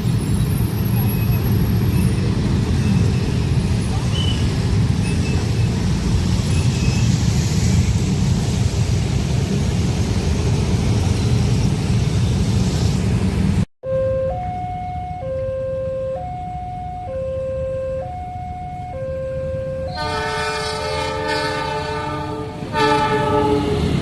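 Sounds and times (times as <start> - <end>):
train passing rumble: 0.0 - 13.7, 19.4 - 24.0
two-tone electronic alarm: 13.8 - 20.3.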